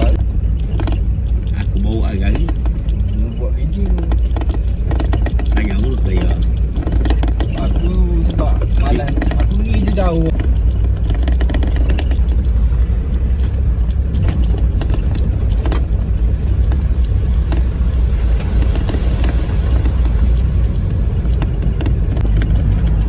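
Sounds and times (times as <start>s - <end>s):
knocks and rattles: 0.0s - 23.0s
off-road vehicle engine rumble: 0.0s - 23.0s.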